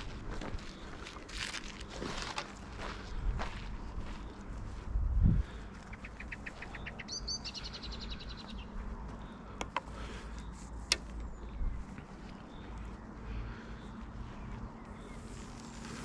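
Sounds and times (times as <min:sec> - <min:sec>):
songbird trilling: 0:05.9 - 0:08.7
sharp clicks: 0:10.8 - 0:11.3.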